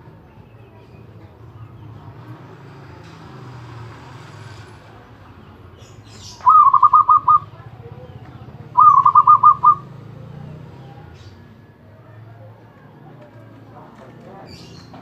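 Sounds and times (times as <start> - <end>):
dove cooing: 6.2 - 11.4.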